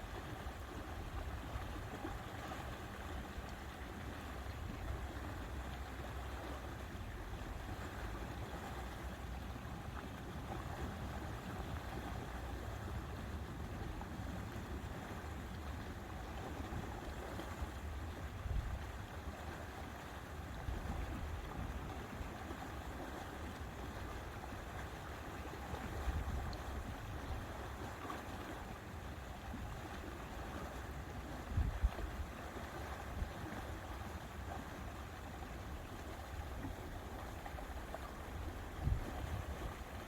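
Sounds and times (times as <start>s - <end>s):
lake water lapping: 0.0s - 40.0s
wind rumbling on microphone: 7.7s - 19.5s, 25.4s - 40.0s.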